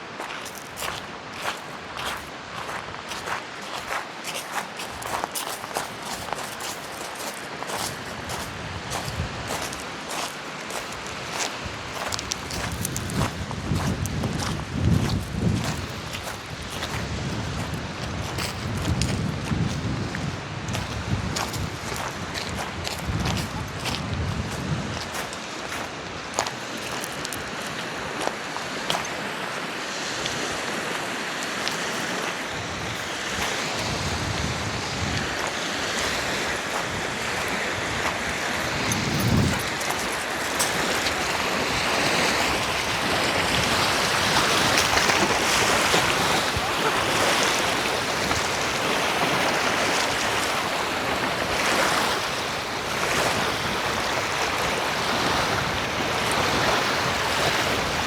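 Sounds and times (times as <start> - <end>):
lake waves washing onto shore: 0.0 - 58.0
wind buffeting microphone: 7.6 - 26.5, 32.3 - 58.0.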